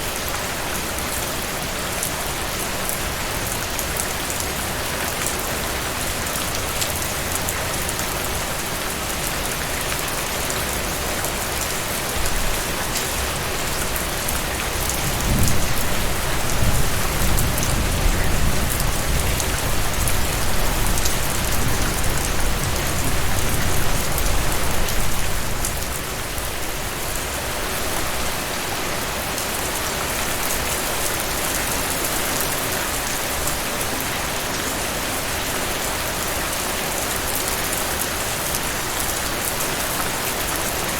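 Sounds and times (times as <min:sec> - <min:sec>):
heavy rain falling: 0:00.0 - 0:40.9
distant thunder rumble: 0:15.0 - 0:24.5.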